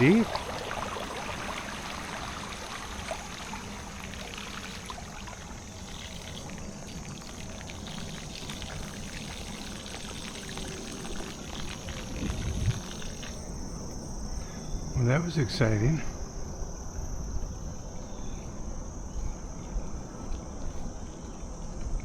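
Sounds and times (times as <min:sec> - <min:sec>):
bicycle tyres splashing through water: 0:00.0 - 0:13.5
water trickling: 0:00.0 - 0:13.6
insects buzzing: 0:00.0 - 0:22.0.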